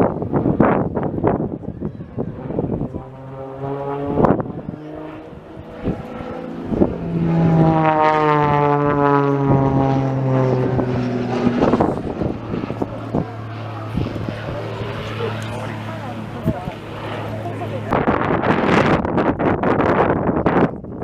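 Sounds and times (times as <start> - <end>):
propeller aircraft flying past: 0.0 - 20.9.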